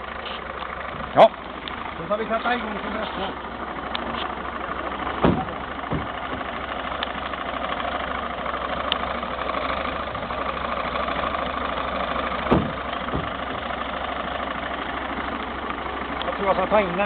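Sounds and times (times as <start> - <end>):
air compressor engine chugging: 0.0 - 17.0
short knocks: 5.2 - 6.4, 12.5 - 13.4.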